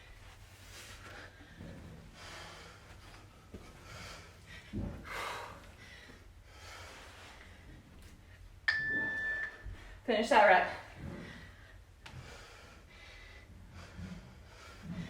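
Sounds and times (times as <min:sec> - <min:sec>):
woman breathing hard: 0:00.8 - 0:08.4, 0:10.9 - 0:15.0.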